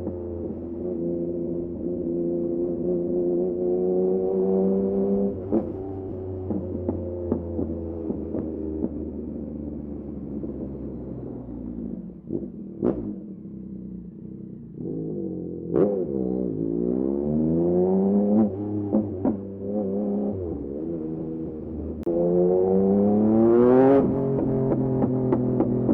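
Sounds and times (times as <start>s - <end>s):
motorcycle engine revving: 10.7s - 25.9s.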